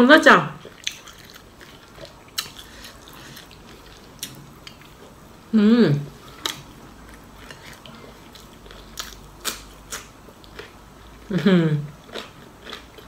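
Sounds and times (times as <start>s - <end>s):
person humming mmm: 5.5s - 6.2s
crisp crunchy chewing: 6.3s - 10.8s.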